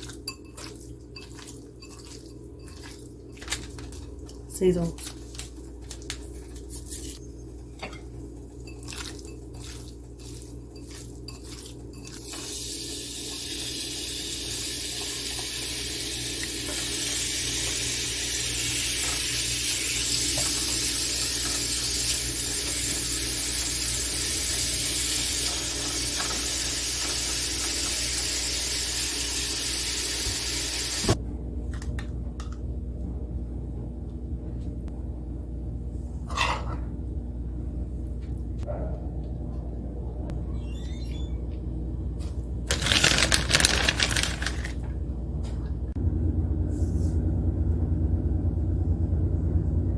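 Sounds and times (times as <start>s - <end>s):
food frying in oil: 8.7s - 31.2s.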